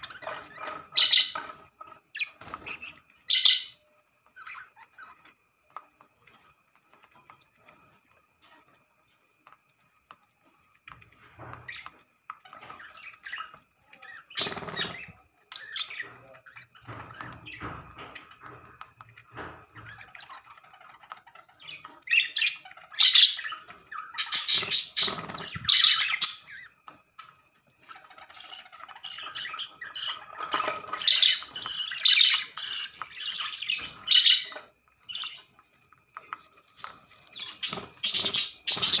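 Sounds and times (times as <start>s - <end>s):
budgerigars squawking and chirping: 0.0s - 5.4s, 11.4s - 18.6s, 19.3s - 26.7s, 27.9s - 35.6s, 36.8s - 39.0s.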